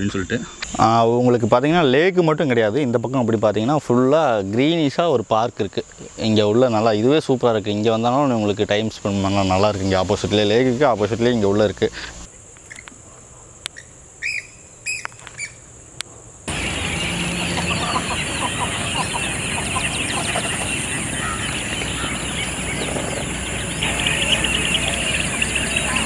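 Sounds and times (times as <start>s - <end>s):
high insect drone: 0.0s - 26.0s
many birds calling and chattering: 5.6s - 26.0s.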